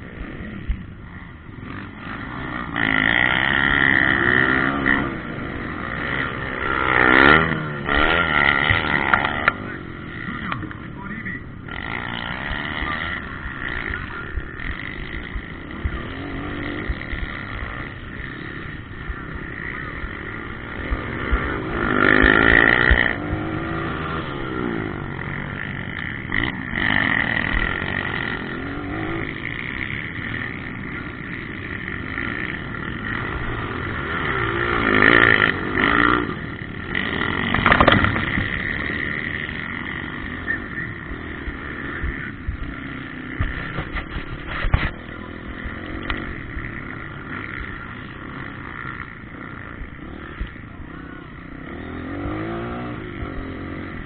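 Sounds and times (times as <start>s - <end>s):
motocross bike engines revving: 0.0s - 54.0s.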